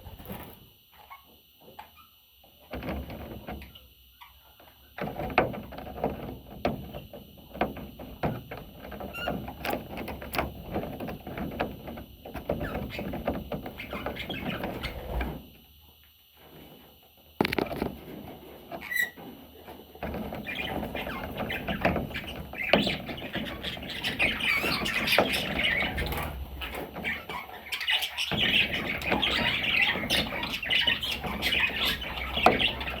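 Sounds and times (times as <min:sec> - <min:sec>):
budgie scratching and clicking: 0:17.4 - 0:18.1.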